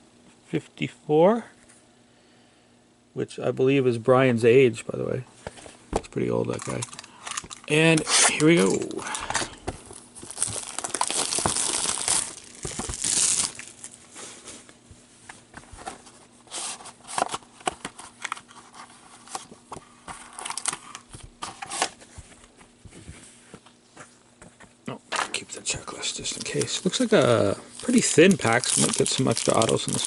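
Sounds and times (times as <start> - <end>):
packaging tearing and crinkling: 6.5 - 14.0, 20.2 - 22.0, 26.2 - 30.0.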